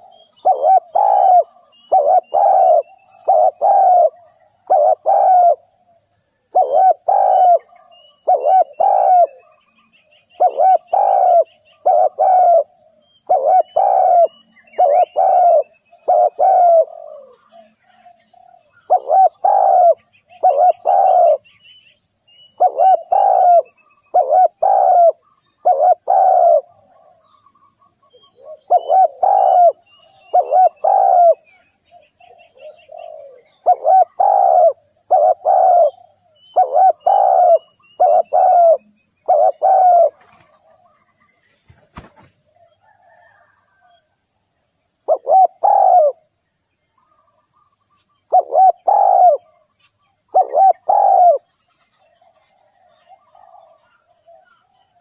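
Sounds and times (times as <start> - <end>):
dove cooing: 0.0 - 9.6, 10.3 - 21.4, 22.6 - 27.3, 28.0 - 41.1, 41.7 - 44.0, 45.1 - 46.2, 48.3 - 49.6, 50.3 - 51.5, 52.1 - 55.0
small birds chirping: 0.0 - 44.0, 44.8 - 55.0.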